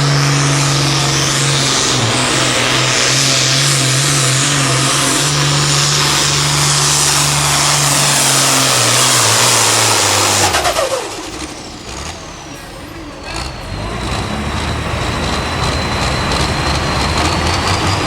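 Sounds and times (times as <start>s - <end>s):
tractor diesel engine at full throttle: 0.0s - 18.0s.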